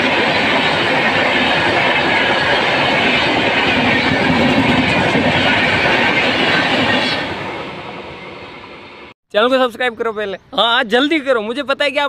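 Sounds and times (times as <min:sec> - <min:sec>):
train wheels rolling on rails: 0:00.0 - 0:09.1.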